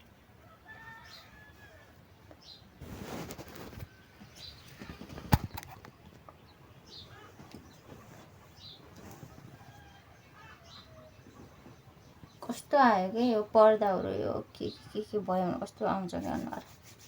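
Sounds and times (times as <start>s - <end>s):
faint bird chirps: 3.4s - 13.3s.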